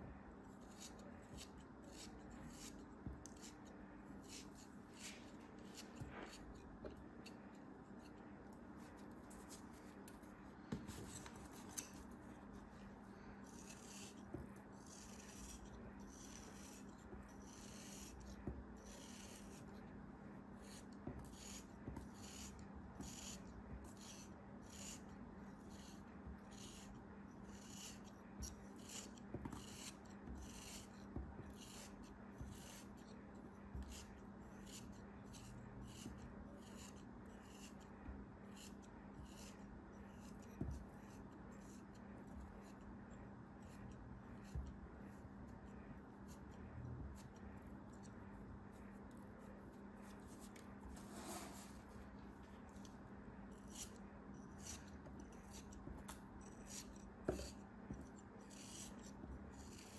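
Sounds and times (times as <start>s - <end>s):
faint steady hum: 0.0s - 59.9s
scratchy rubbing strokes: 49.4s - 51.9s.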